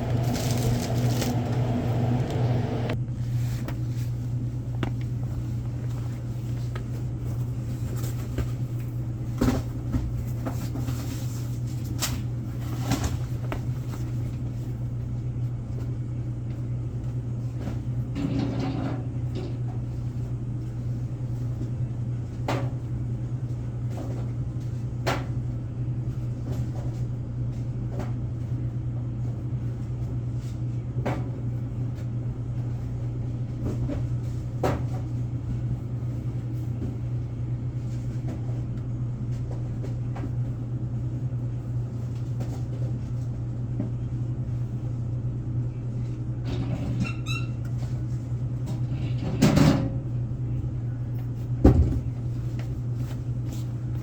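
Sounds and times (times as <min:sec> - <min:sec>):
boxes being handled: 0:00.0 - 0:02.4
steady low hum: 0:00.0 - 0:46.9.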